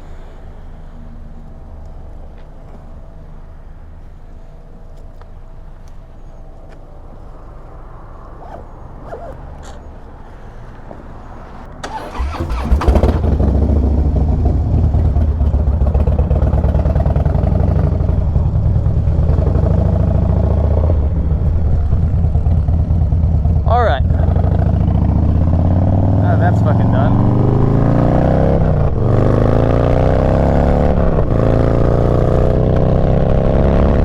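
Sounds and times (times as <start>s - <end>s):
motorcycle engine running: 11.9s - 34.0s.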